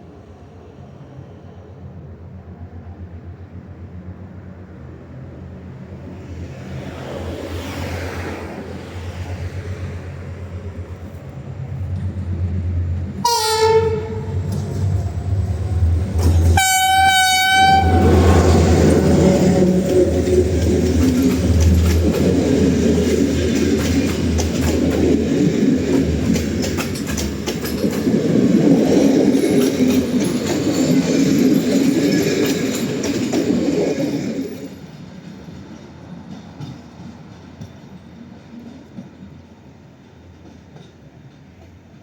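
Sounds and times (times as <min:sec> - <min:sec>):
diesel locomotive engine drone: 0:00.0 - 0:42.0
train wheels rumbling: 0:00.7 - 0:42.0
locomotive horn blast: 0:13.2 - 0:14.6, 0:16.3 - 0:20.5
clicks over rail joints: 0:25.9 - 0:28.1.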